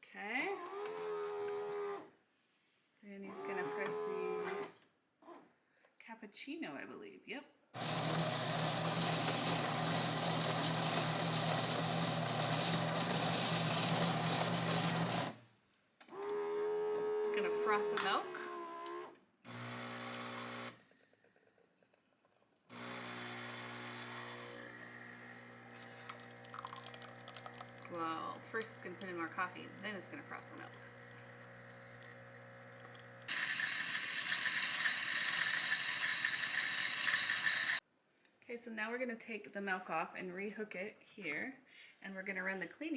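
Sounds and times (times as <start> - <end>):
espresso machine motor hum: 7.8 - 15.4, 19.5 - 20.8, 22.7 - 37.8
espresso machine hiss: 22.8 - 37.8.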